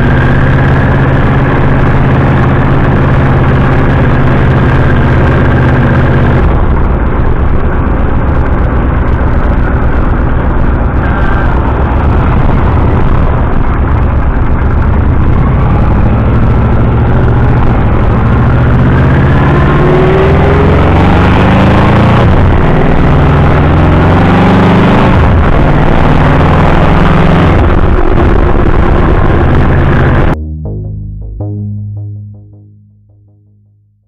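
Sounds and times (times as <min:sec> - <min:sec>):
road noise: 0:00.0 - 0:30.4
car engine accelerating: 0:00.0 - 0:32.8
electronic music: 0:30.3 - 0:33.7.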